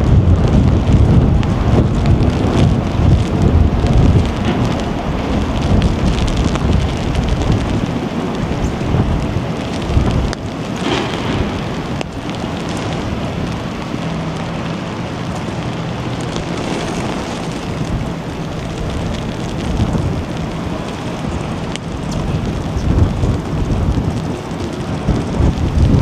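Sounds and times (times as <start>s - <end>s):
rain rushing: 0.0s - 26.0s
wind buffeting microphone: 0.0s - 26.0s.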